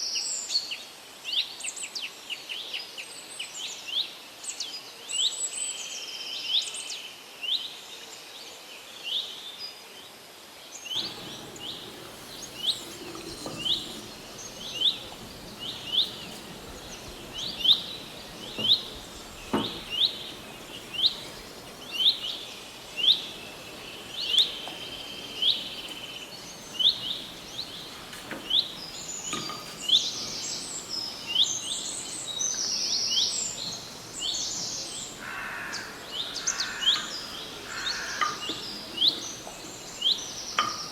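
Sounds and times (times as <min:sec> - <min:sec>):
birds twittering: 0:10.9 - 0:40.9
outdoor hiss: 0:10.9 - 0:40.9
bird chirping: 0:11.0 - 0:40.9.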